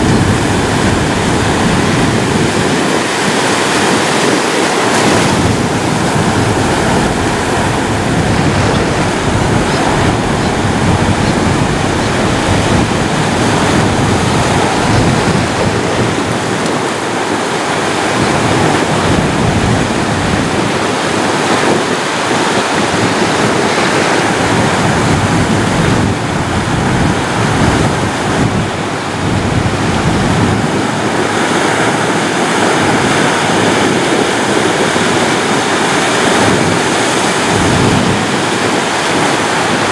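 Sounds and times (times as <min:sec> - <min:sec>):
waves breaking on a beach: 0:00.0 - 0:39.9.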